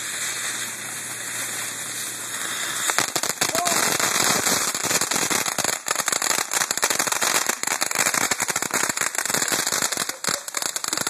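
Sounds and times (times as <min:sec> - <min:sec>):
firecrackers crackling: 0:00.0 - 0:11.0.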